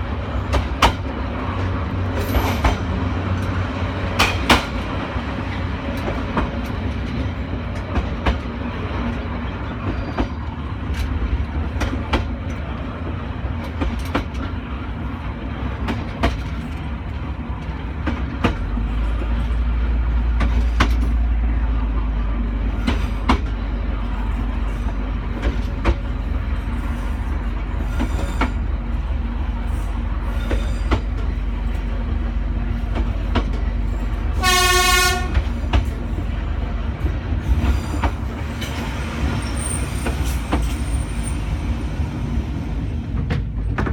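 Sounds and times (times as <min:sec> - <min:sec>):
train rumbling along track: 0:00.0 - 0:43.9
wheels clicking over rail joints: 0:00.4 - 0:14.7.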